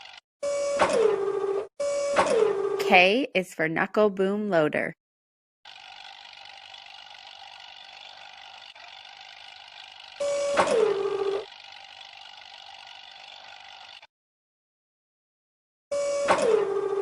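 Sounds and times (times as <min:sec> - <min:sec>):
machinery mechanical whine: 0:05.7 - 0:13.8, 0:15.9 - 0:17.0.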